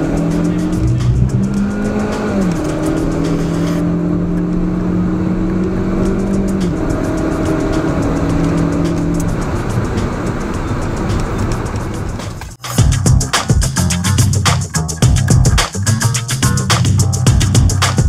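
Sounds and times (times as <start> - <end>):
car engine at high revs: 0.0 - 12.4
background music: 0.0 - 18.0.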